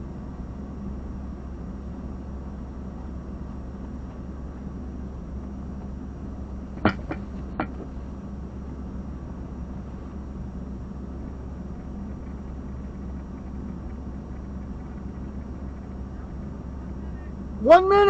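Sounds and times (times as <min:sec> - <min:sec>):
low hum with hiss: 0:00.0 - 0:18.0
sharp clicks: 0:11.7 - 0:16.0.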